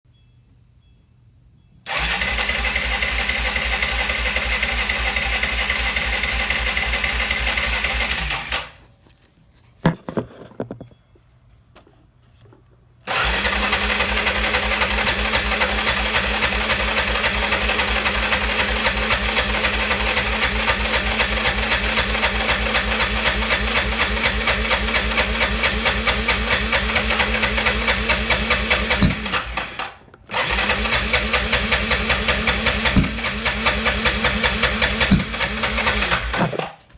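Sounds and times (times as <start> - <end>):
atv engine idling: 1.9 - 8.5, 13.1 - 29.6, 30.4 - 36.4.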